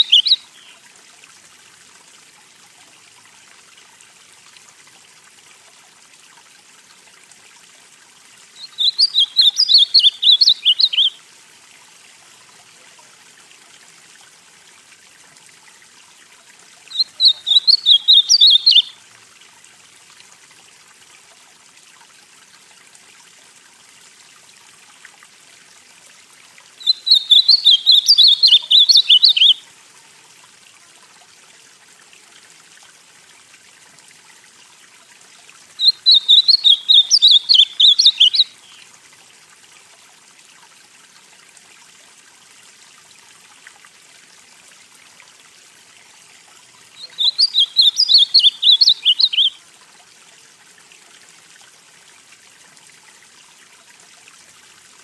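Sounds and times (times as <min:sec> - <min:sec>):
bird singing warbled phrases: 0:00.0 - 0:00.8, 0:08.6 - 0:11.2, 0:16.9 - 0:19.0, 0:26.8 - 0:29.6, 0:35.8 - 0:38.8, 0:47.0 - 0:49.6
faint steady hiss: 0:00.0 - 0:55.0.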